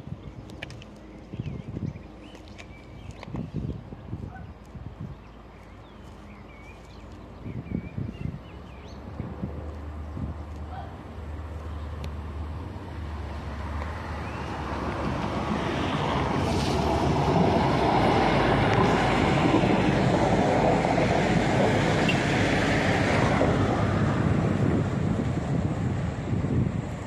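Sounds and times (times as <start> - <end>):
train wheels on rails: 13.2 - 25.2.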